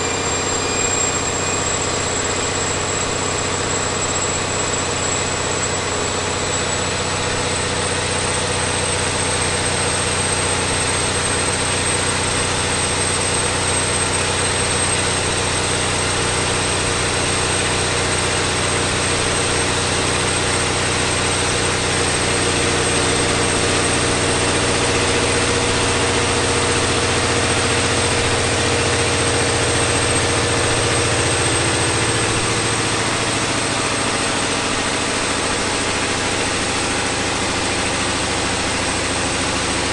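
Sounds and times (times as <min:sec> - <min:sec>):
diesel engine running: 0:00.0 - 0:39.9
high whine: 0:00.0 - 0:39.9.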